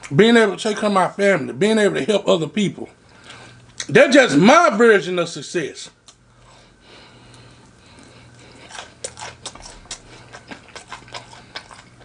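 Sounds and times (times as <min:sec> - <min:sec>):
faint low hum: 0:00.0 - 0:12.0
person chewing food: 0:06.0 - 0:12.0.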